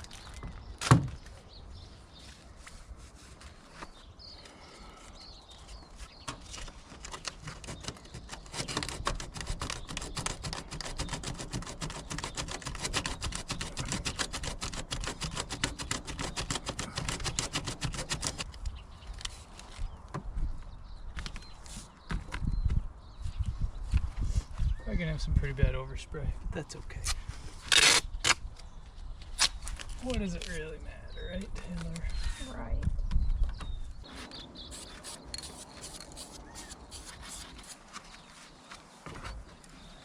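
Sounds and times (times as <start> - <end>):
spray can rattling: 34.7 - 37.6.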